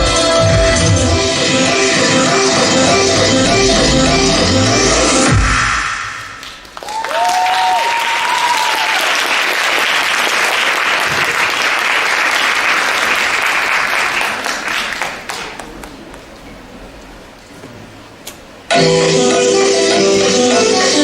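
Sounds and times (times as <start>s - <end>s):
music: 0.0s - 5.8s, 18.7s - 21.0s
audience applauding: 6.4s - 16.0s.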